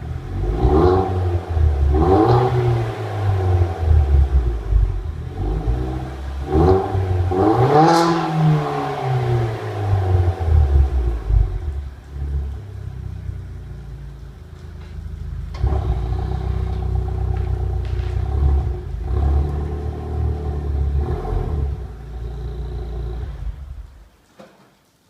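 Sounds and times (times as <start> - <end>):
car exhaust rumble with blips: 0.0 - 24.2.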